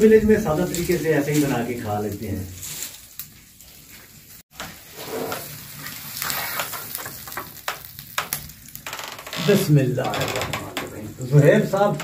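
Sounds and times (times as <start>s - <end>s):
omelette sizzling on a hot pan: 0.3s - 8.9s.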